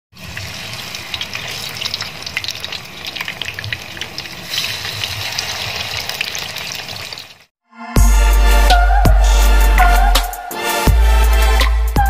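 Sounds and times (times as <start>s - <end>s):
frying sizzle with crackling pops: 0.1s - 7.5s.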